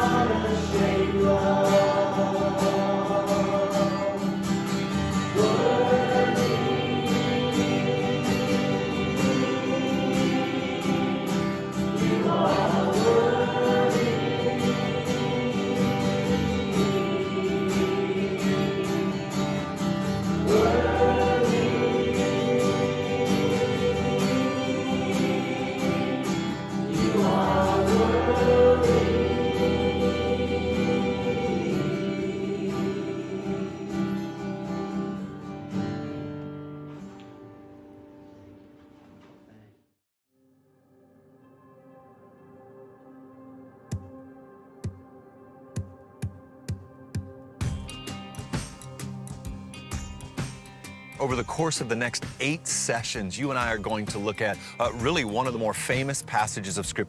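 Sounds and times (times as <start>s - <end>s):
voices singing: 0.0s - 35.2s
band with guitar and beat: 45.8s - 56.9s.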